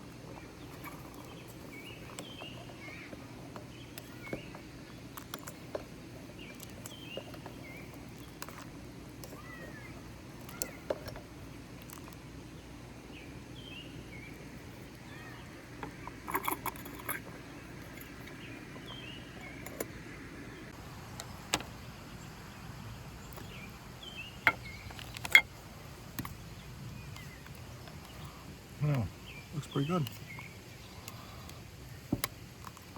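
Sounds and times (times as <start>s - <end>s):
low background rush: 0.0s - 32.9s
faint bird chirps: 0.3s - 5.6s, 9.3s - 11.0s, 13.1s - 20.8s.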